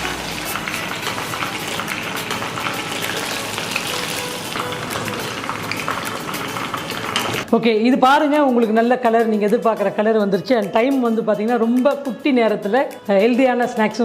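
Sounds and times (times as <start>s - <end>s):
chicken deep-frying in oil: 0.0s - 7.5s.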